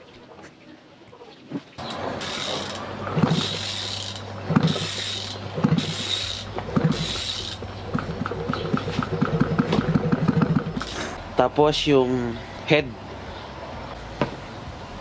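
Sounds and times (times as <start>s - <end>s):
steady low hum: 1.8s - 11.9s.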